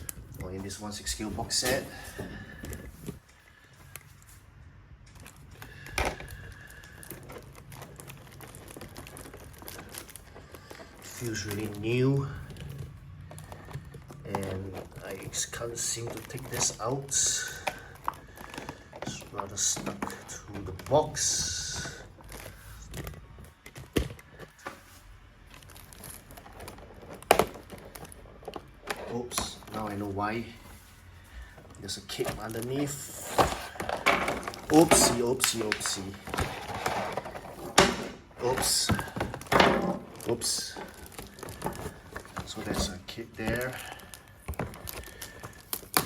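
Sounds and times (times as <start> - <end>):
plastic tray clicking and crinkling: 5.1 - 24.6, 31.6 - 46.0.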